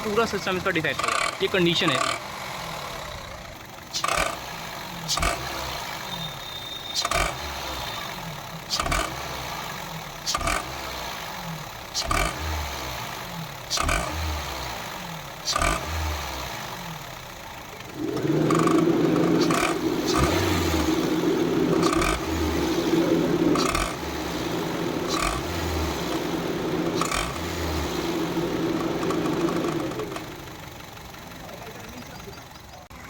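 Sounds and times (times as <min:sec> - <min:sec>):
petrol engine running: 0:00.0 - 0:33.0
drive belt rattling clatter: 0:17.9 - 0:32.9.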